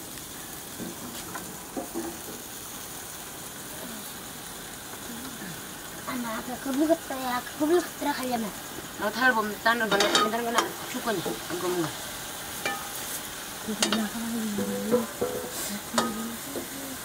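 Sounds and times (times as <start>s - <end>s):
vegetables sizzling in a wok: 0.0s - 17.0s
metal ladle scraping a pan: 12.6s - 13.2s, 14.6s - 16.2s.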